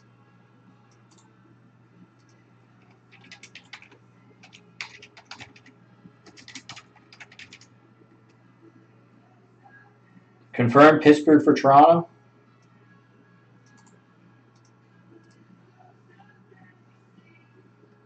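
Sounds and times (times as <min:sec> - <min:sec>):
faint low hum: 0:00.0 - 0:18.0
typing on computer keyboard: 0:02.2 - 0:07.7.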